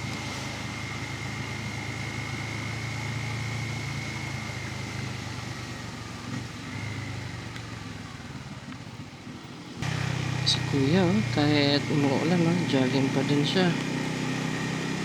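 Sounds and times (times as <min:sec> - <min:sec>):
motorcycle engine running: 0:00.0 - 0:15.0
tyres on wet road: 0:00.0 - 0:15.0.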